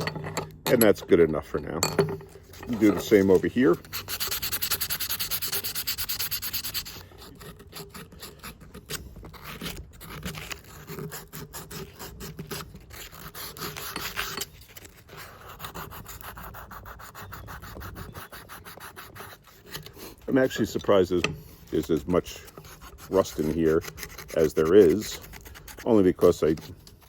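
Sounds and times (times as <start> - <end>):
sandpaper rubbing on steel: 2.6 - 27.0.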